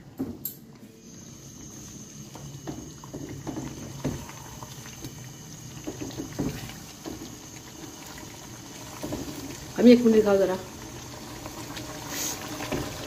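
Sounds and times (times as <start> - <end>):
food sizzling in oil: 1.4 - 13.0.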